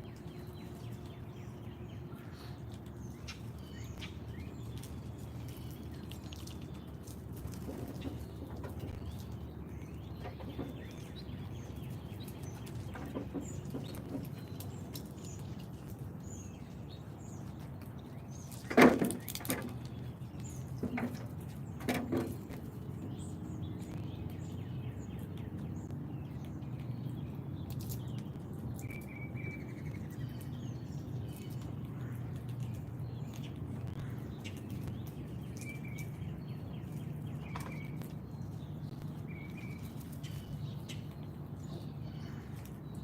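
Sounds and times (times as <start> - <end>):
small birds chirping: 0.0 - 43.0
steady low rumble: 0.0 - 43.0.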